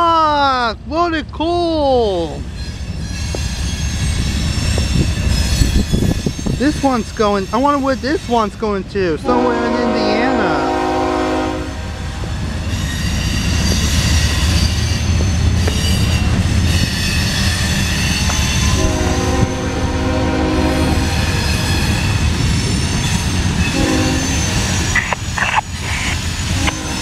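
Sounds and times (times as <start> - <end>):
freight train rumbling past: 0.0 - 27.0
train wheels squealing: 2.4 - 8.5, 12.5 - 19.3, 20.7 - 27.0
train horn: 9.2 - 12.0, 18.7 - 21.4, 23.6 - 24.7, 26.6 - 27.0.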